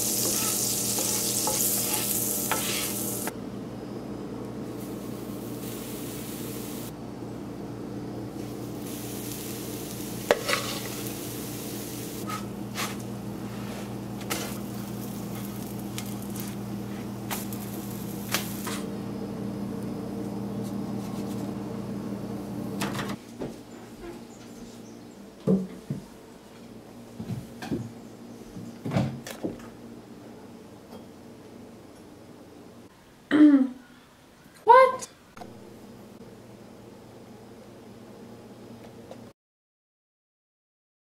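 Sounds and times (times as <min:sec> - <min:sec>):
batter sizzling on a griddle: 0:00.0 - 0:03.3, 0:04.7 - 0:06.9, 0:08.4 - 0:18.9
steady hum: 0:00.0 - 0:23.2.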